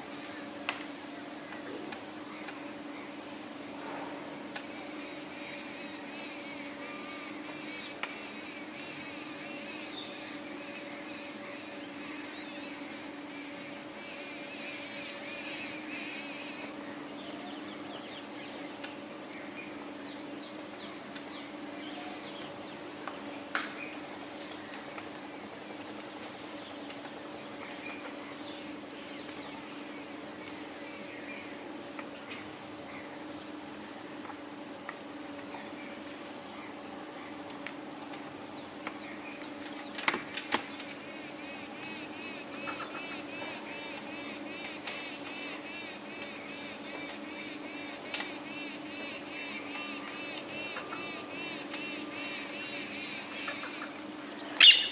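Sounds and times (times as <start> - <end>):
steady low hum: 0.0 - 54.9
parrots chirping: 54.6 - 54.9.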